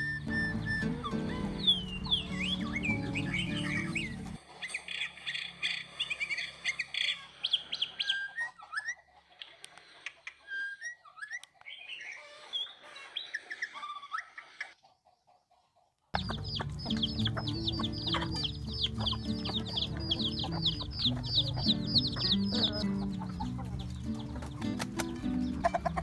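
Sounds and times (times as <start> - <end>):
background music: 0.0 - 4.4, 16.2 - 26.0
birds chirping: 0.0 - 15.3, 16.2 - 26.0.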